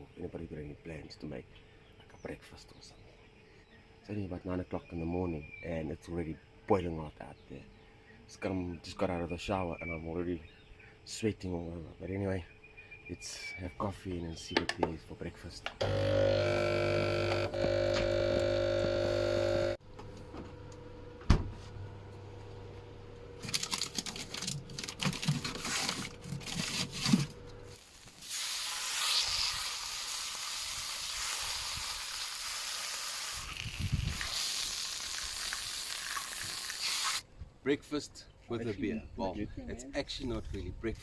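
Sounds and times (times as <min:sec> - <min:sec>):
food sizzling in frying: 0:27.7 - 0:37.2.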